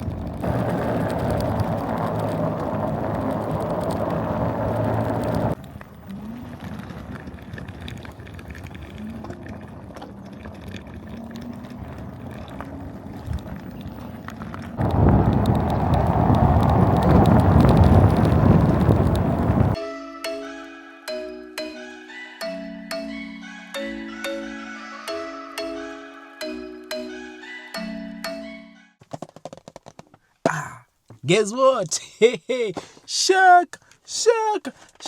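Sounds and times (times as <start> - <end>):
mini bike engine running: 0.0 - 19.8.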